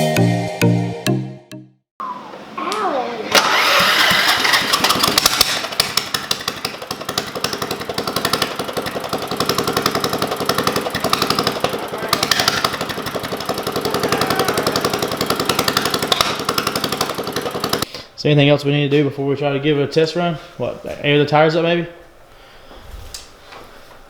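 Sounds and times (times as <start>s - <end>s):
lawn mower engine chugging: 3.3s - 17.9s.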